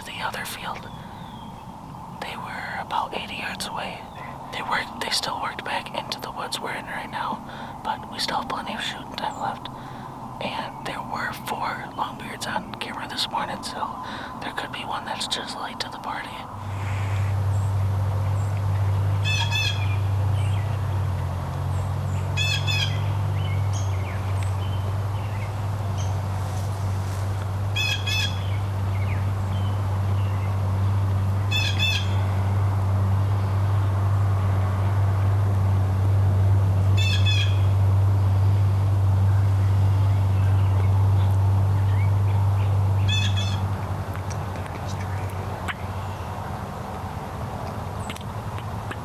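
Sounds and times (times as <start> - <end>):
songbird singing: 0.0 - 49.0
steady low hum: 0.0 - 49.0.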